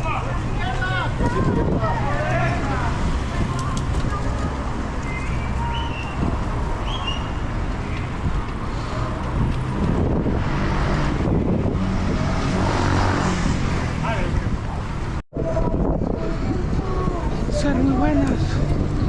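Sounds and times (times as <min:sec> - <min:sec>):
traffic rumble: 0:00.0 - 0:19.0.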